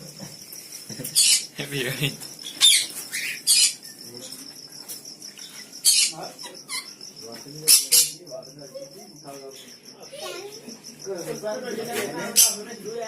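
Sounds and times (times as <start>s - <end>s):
cricket chirring: 0.0s - 13.0s
sharp bird calls: 0.8s - 11.2s.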